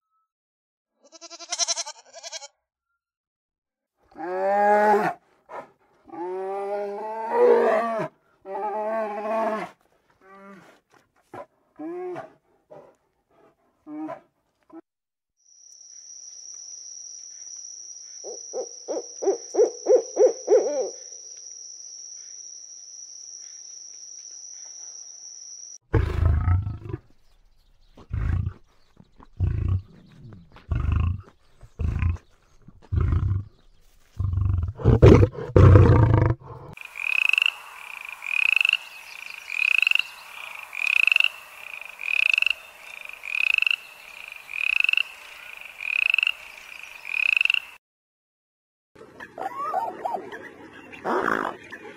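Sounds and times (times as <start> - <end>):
high-pitched animal drone: 36.1 - 47.6
rhythmic repeating animal call: 36.7 - 47.8.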